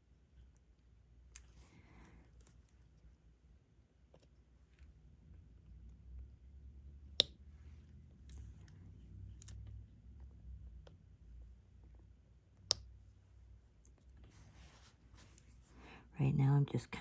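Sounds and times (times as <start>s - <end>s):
light clicks and taps of pen: 7.1s - 11.0s, 12.6s - 13.0s.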